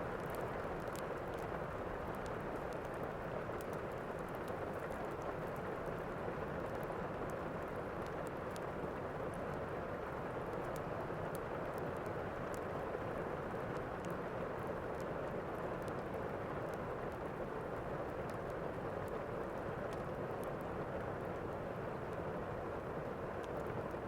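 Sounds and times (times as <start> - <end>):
fire crackles: 0.0 - 24.0
steady rain: 0.0 - 24.0.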